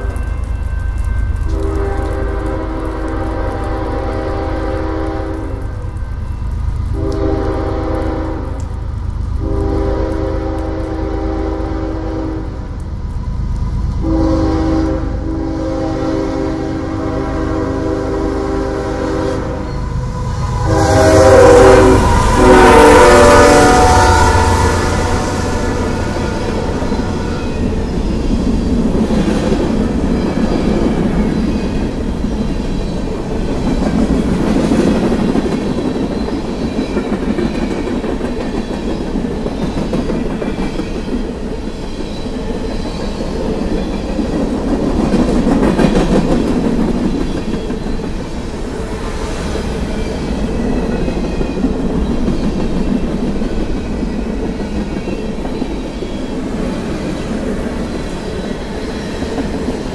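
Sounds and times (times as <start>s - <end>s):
train horn blast: 0.0s - 6.2s, 6.9s - 8.8s, 9.4s - 12.7s, 14.0s - 27.7s
train wheels rumbling and clacking: 16.5s - 59.9s.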